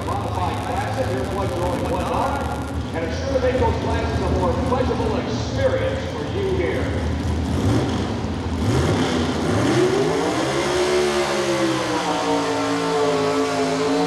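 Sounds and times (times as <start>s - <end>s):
truck engine revving hard: 7.0s - 14.0s.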